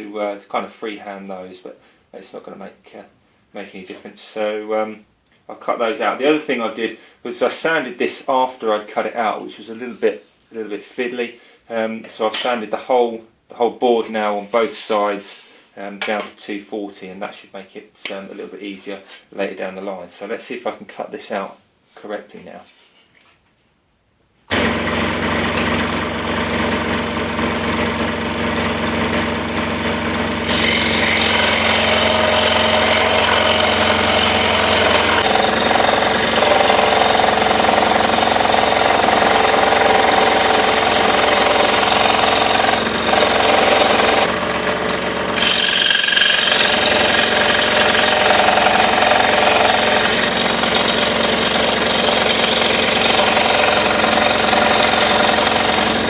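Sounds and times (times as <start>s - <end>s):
scroll saw cutting wood: 24.5s - 26.9s, 27.7s - 56.0s.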